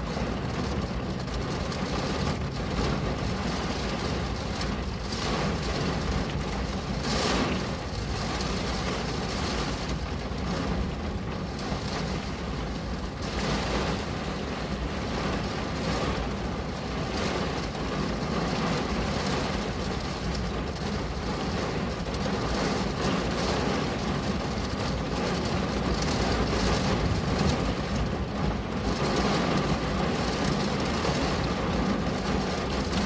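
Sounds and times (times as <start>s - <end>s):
rain on a window pane: 0.0s - 33.0s.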